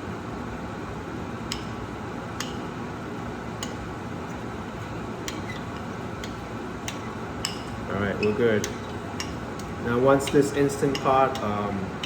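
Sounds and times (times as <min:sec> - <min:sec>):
steady background hum: 0:00.0 - 0:12.0
utensil clicking against bowl: 0:05.2 - 0:12.0.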